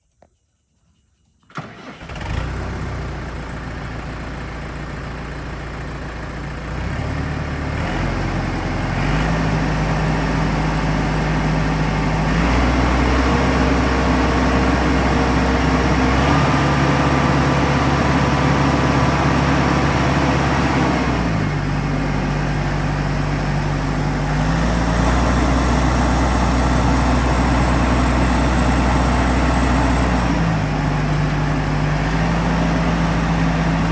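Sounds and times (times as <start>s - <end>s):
tractor diesel engine running: 1.5s - 33.9s.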